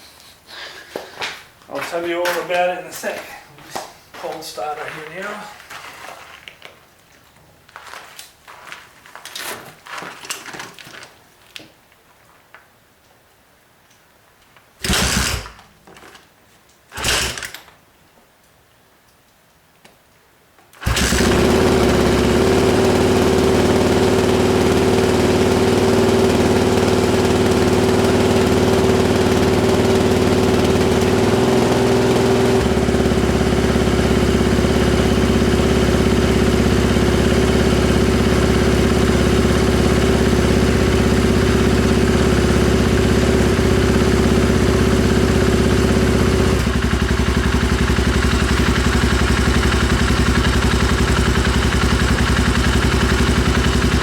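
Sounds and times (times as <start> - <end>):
motorcycle engine starting and idling: 14.8 - 15.7, 16.9 - 17.7, 20.8 - 54.0.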